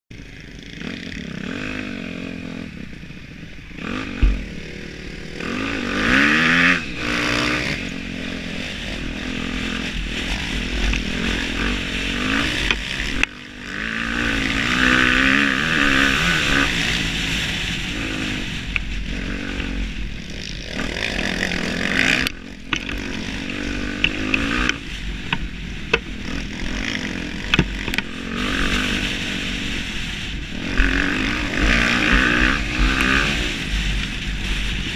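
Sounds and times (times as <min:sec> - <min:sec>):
motocross bike engine revving: 0:00.1 - 0:34.9.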